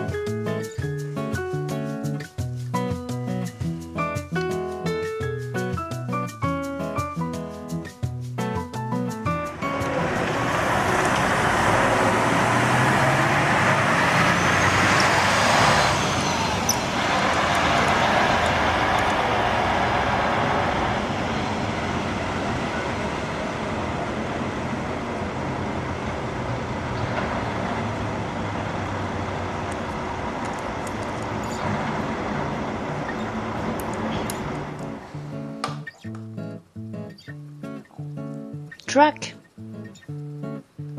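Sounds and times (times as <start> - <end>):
bus engine and road noise: 0.0 - 7.1, 8.7 - 36.8
brief high squeal: 14.3 - 16.9.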